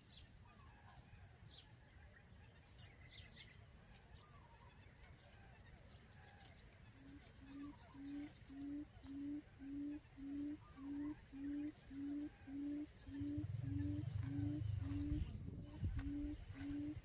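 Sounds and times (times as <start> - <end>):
faint high bird chirps: 2.4 - 17.0
quail call low hoots: 7.0 - 17.0
low rumble: 12.8 - 17.0.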